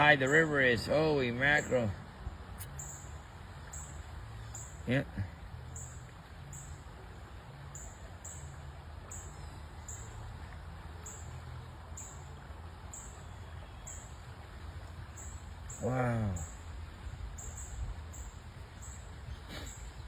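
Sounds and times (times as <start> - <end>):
river rushing: 0.0 - 20.0
insect chirping: 2.6 - 5.0, 7.7 - 14.2, 15.0 - 16.6, 17.3 - 19.7.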